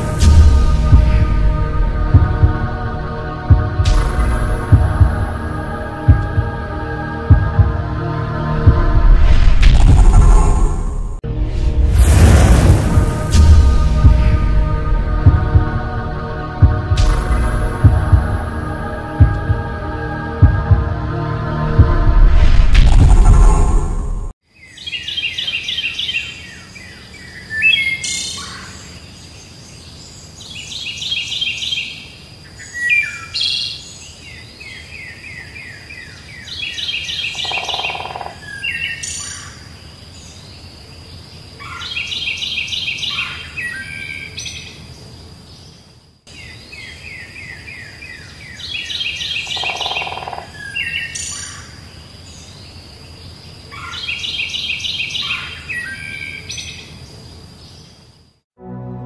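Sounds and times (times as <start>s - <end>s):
birds singing and chirping: 24.6s - 58.0s.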